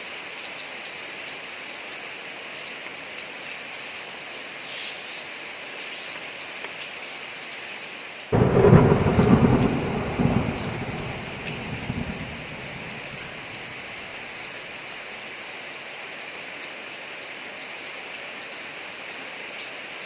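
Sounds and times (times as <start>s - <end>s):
rain falling on street: 0.0s - 20.0s
thunderclap rumbling: 8.4s - 14.6s.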